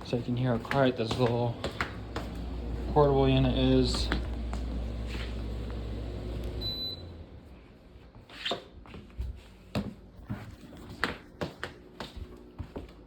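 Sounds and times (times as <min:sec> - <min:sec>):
air conditioner humming: 0:00.0 - 0:13.0
air conditioner control beep: 0:06.4 - 0:07.3.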